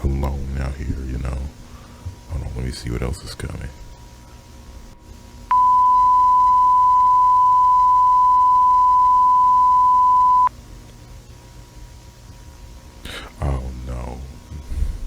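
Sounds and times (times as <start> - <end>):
loud electronic beep: 5.5 - 10.5.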